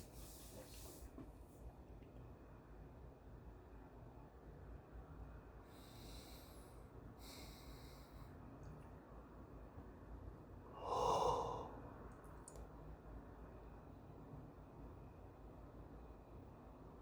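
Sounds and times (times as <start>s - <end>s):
person breathing: 5.7s - 8.4s, 10.7s - 11.9s.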